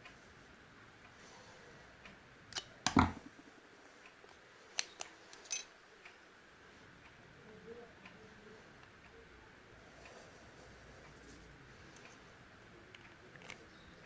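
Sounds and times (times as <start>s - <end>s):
metal parts clicking and knocking: 2.8s - 3.3s, 4.8s - 5.7s.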